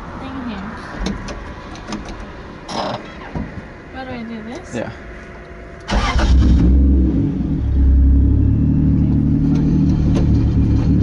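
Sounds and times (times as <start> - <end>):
car engine revving: 5.8 - 11.0.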